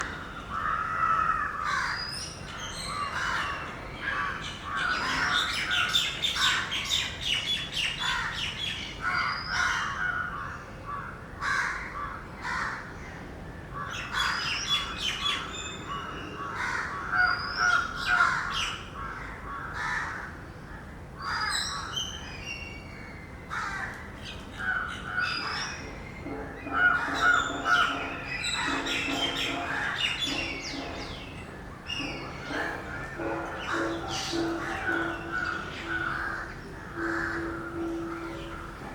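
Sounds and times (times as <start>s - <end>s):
birds calling: 0.0s - 10.5s, 21.2s - 38.9s.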